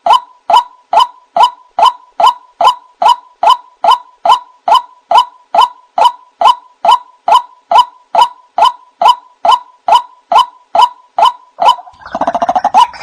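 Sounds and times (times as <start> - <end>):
chorus of croaks: 11.2 - 13.0.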